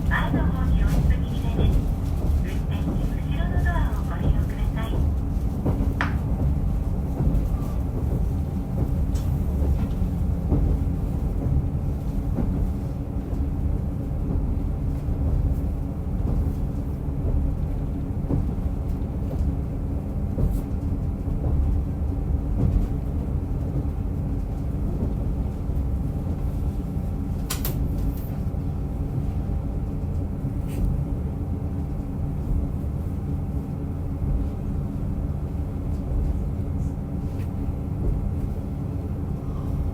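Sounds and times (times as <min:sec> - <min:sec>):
diesel train rumbling on track: 0:00.0 - 0:39.9
sharp clicks of train wheels: 0:27.4 - 0:28.3.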